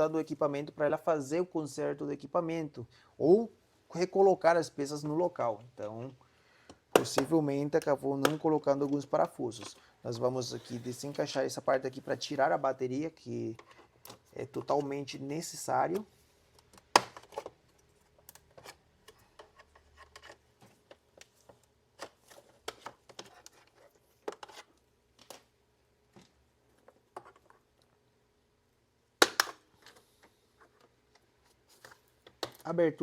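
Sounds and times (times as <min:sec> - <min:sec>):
plastic parts clicking and knocking: 0:15.9 - 0:25.5, 0:29.2 - 0:32.7.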